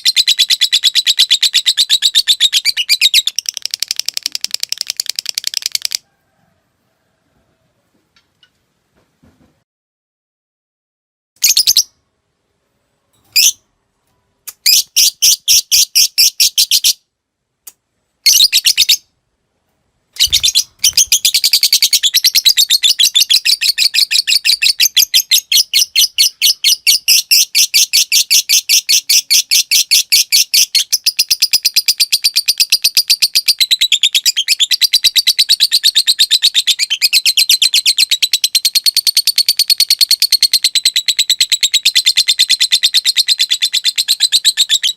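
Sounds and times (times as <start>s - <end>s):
lovebird chirping and trilling: 0.0s - 6.0s, 11.4s - 12.0s, 13.2s - 13.7s, 14.5s - 17.0s, 18.2s - 19.1s, 20.2s - 44.9s.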